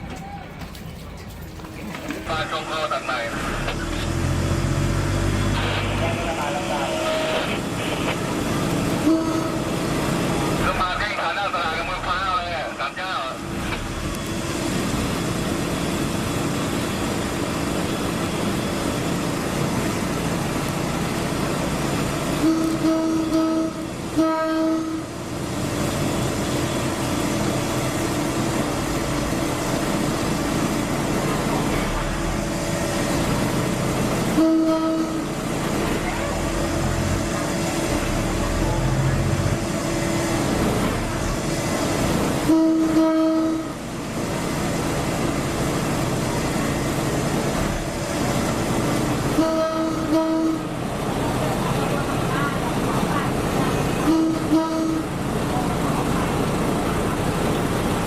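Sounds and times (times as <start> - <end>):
train running noise: 0.0 - 58.0
train horn blast: 9.0 - 9.8, 22.4 - 25.2, 34.3 - 35.4, 42.4 - 43.8, 49.3 - 50.8, 54.0 - 55.1.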